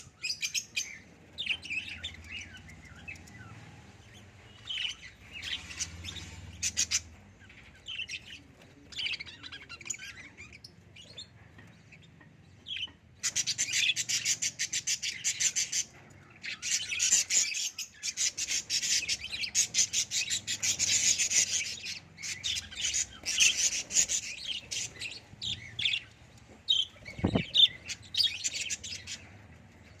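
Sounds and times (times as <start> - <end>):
bird chick chirping: 12.8 - 30.0.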